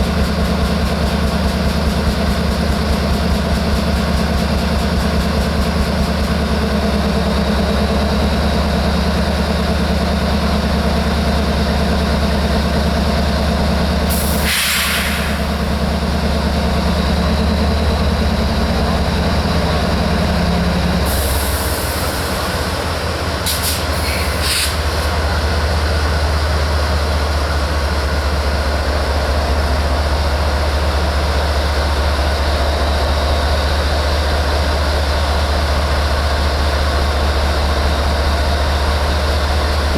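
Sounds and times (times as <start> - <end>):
diesel locomotive engine running: 0.0 - 39.9
air hissing from train brakes: 14.1 - 15.8, 21.0 - 25.3.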